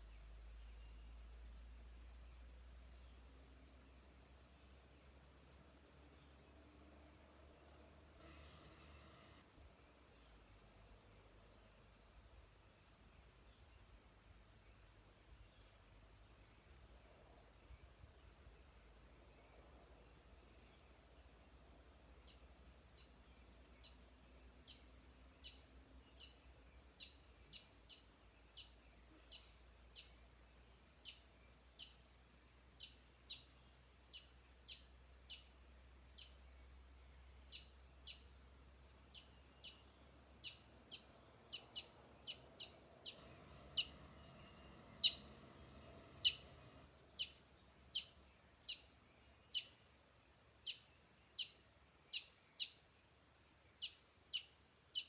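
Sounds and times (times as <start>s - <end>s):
faint hiss: 0.0s - 52.1s
bird chirping: 6.2s - 9.4s, 37.4s - 49.8s.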